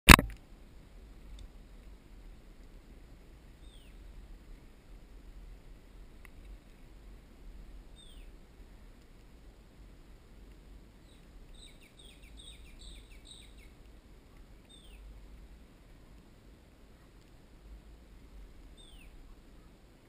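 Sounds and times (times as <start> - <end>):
faint low rumble: 0.1 - 20.0
bird whistling and chirping: 11.1 - 13.7.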